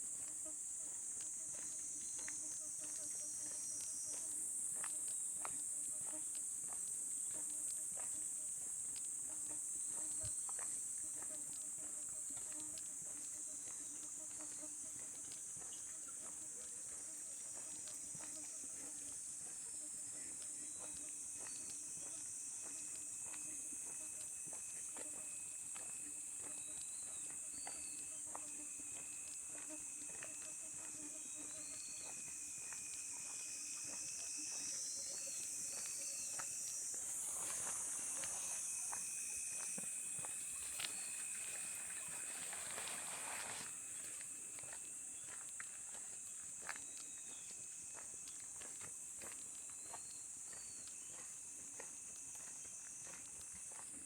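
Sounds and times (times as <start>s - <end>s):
crickets and night insects chirping: 0.0s - 54.0s
light footsteps: 9.9s - 54.0s
frogs croaking: 11.8s - 54.0s.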